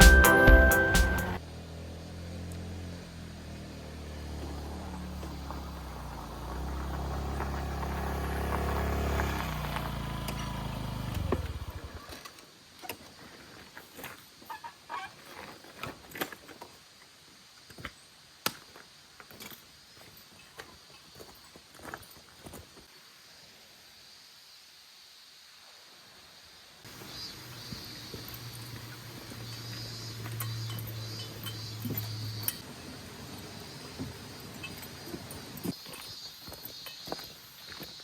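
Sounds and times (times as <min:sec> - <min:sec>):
moped engine running: 0:00.0 - 0:12.1.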